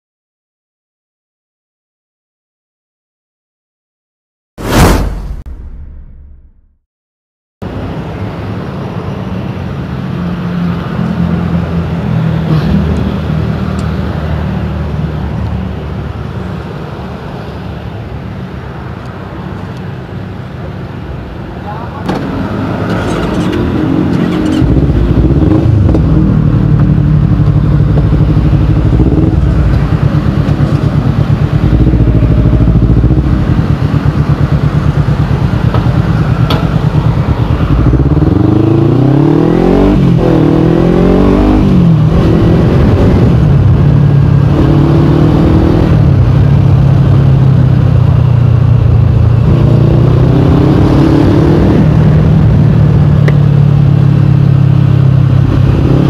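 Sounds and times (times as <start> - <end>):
motorcycle engine revving: 22.0 - 56.0.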